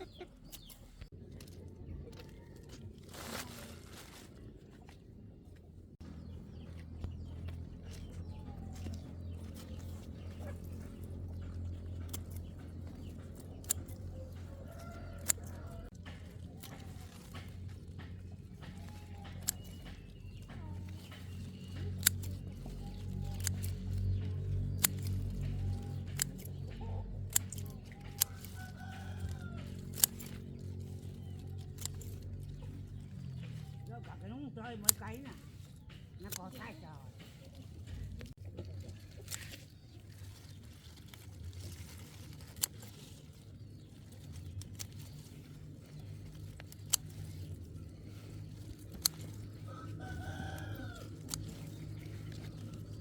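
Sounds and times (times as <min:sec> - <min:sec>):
chickens clucking: 0:00.0 - 0:02.8, 0:06.2 - 0:31.4
sharp clicks: 0:18.0 - 0:30.5.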